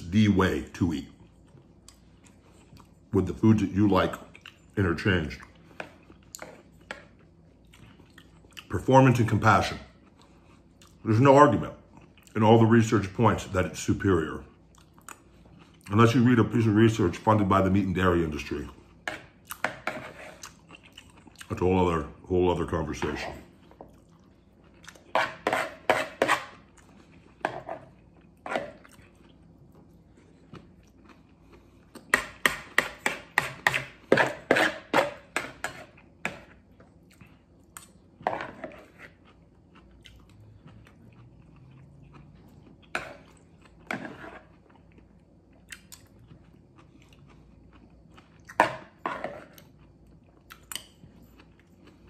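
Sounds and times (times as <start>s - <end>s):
man chewing food: 1.1s - 3.2s, 4.1s - 8.8s, 9.8s - 11.0s, 11.7s - 12.4s, 14.4s - 16.0s, 18.4s - 21.7s, 23.2s - 52.0s.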